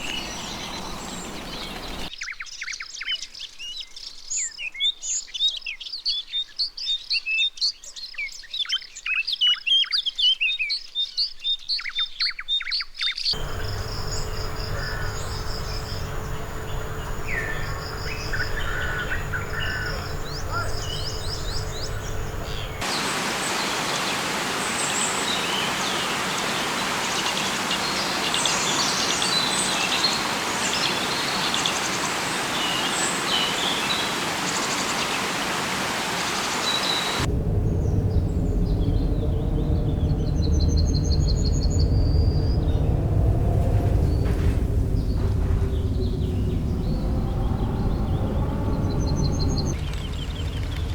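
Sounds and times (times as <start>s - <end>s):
birds chirping: 0.0s - 2.1s, 13.4s - 50.9s
low hum: 0.0s - 2.1s, 13.4s - 29.2s, 37.1s - 50.9s
pulsing high insect tones: 0.0s - 2.1s, 13.4s - 32.6s
steady hiss: 0.0s - 2.1s, 13.4s - 40.3s, 43.6s - 50.9s.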